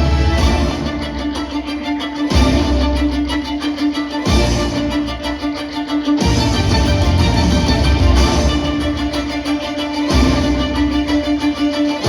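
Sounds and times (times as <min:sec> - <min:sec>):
heavy low accent: 0:00.0 - 0:12.0
orchestral music with violins: 0:00.0 - 0:12.0.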